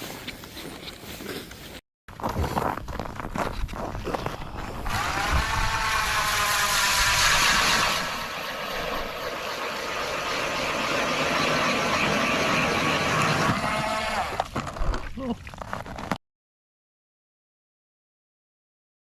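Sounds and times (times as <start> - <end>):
small motor running: 4.8 - 14.4.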